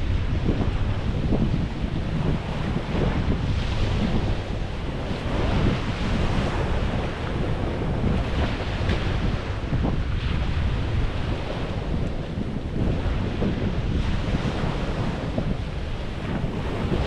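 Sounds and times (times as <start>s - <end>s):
small waves on a beach: 0.0s - 17.0s
wind buffeting microphone: 0.0s - 17.0s.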